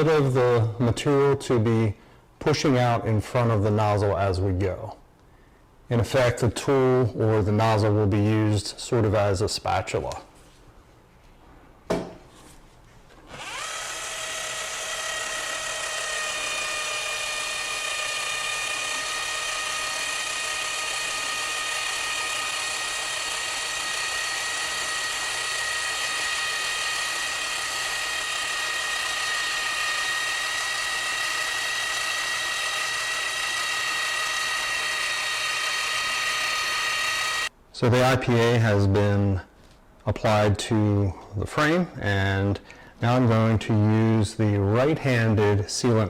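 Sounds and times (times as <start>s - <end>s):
caulking gun motor whining: 13.2s - 37.5s.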